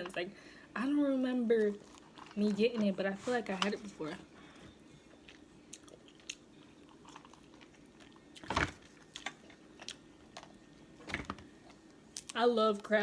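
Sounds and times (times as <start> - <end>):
chewing with clicks and smacks: 5.1 - 10.6.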